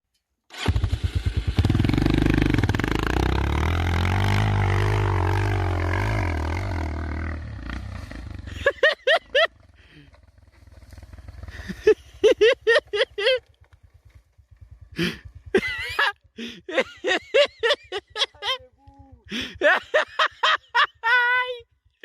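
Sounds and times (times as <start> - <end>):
motorcycle engine revving: 0.5 - 16.6.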